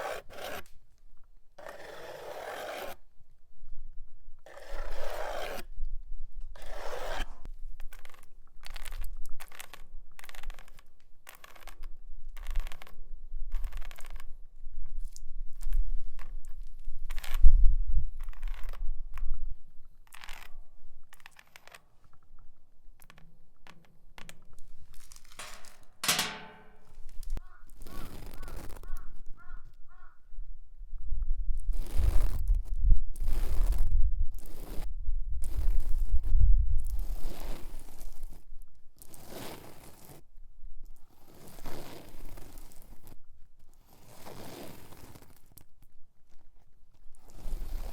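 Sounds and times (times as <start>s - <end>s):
metal nails scratching a tyre: 0.0s - 0.7s, 1.6s - 3.0s, 4.5s - 5.6s, 6.6s - 8.2s, 11.3s - 11.8s, 21.2s - 22.0s, 23.0s - 27.0s.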